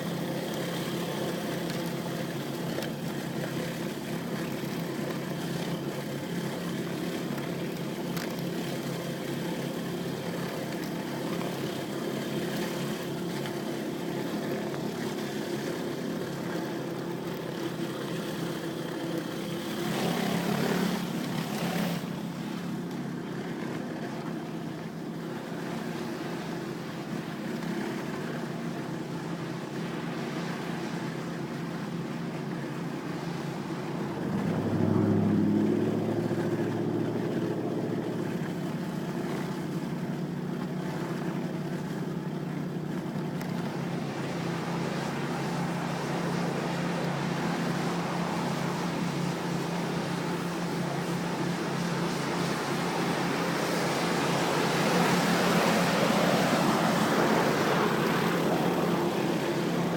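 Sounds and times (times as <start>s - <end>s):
pressure washer engine running: 17.0s - 22.8s.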